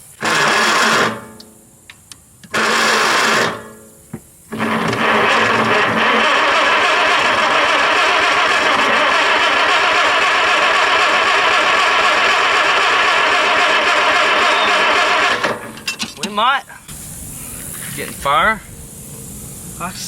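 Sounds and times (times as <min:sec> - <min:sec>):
engine cranking by starter: 0:00.2 - 0:01.4, 0:02.5 - 0:03.8, 0:04.5 - 0:16.0.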